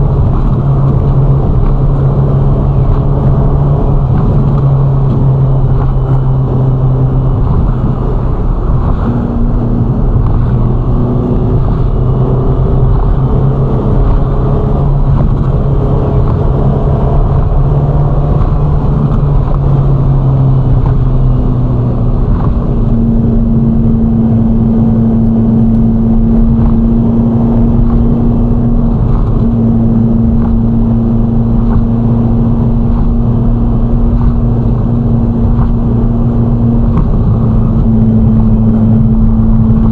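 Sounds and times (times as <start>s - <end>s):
car engine droning at cruising speed: 0.0s - 39.9s.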